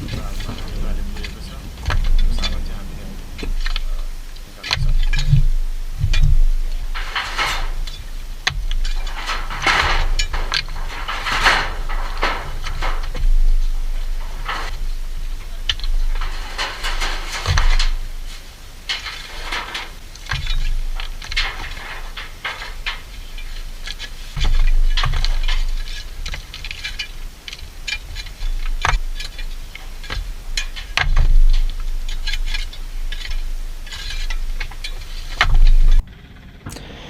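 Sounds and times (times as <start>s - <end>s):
low rumbling bursts: 0.0s - 11.0s, 35.9s - 37.0s.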